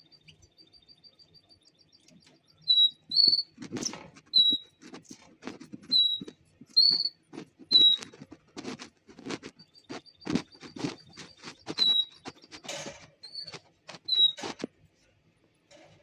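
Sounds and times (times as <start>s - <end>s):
finches chirping: 0.0s - 4.9s, 5.8s - 8.3s, 9.4s - 14.6s
quick taps and rustles: 3.3s - 14.8s.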